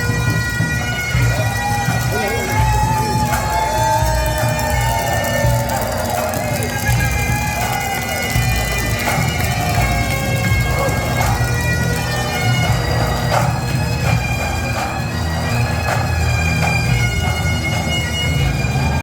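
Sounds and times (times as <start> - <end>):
bagpipes playing a tune: 0.0 - 19.0.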